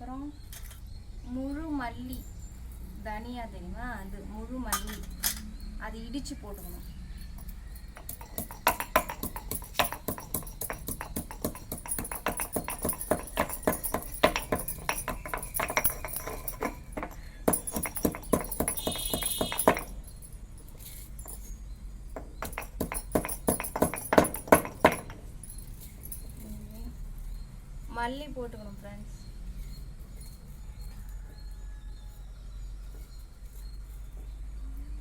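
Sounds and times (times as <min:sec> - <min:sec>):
pestle pounding seeds: 0:07.4 - 0:26.4.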